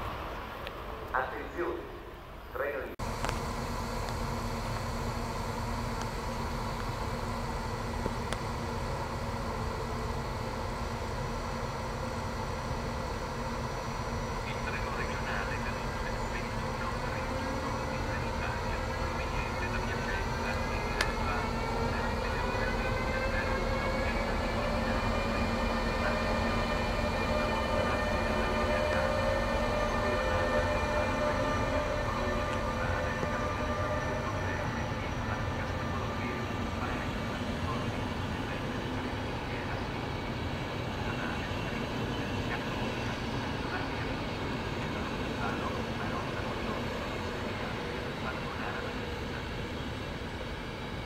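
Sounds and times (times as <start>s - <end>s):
faint locomotive whine: 0.0s - 51.0s
train wheels rumbling on rail: 3.0s - 51.0s.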